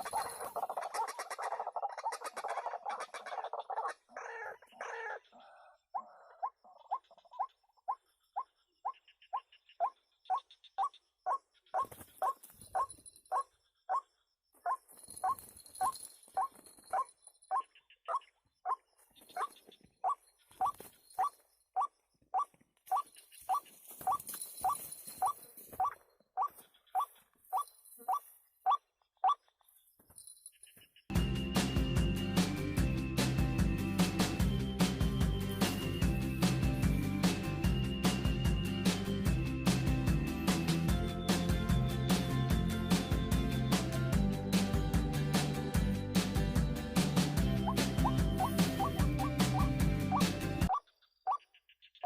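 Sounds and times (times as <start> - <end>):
waterhen calling: 0.0 - 5.4, 47.6 - 51.4.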